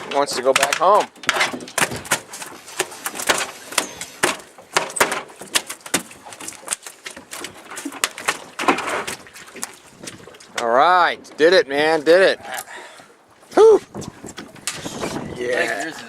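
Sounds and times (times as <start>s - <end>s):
fish slapping the deck: 0.5s - 10.6s.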